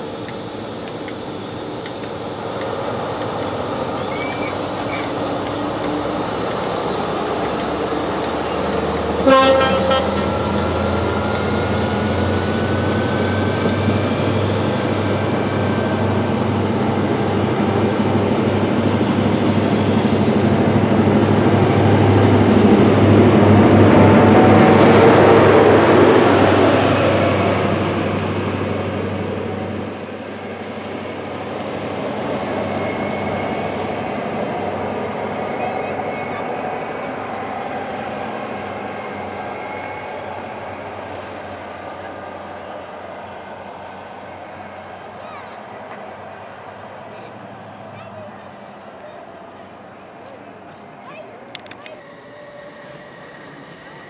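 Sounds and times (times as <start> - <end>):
diesel train engine drone: 0.0 - 54.0
train wheel rumble: 0.0 - 54.0
train horn blast: 9.1 - 11.6.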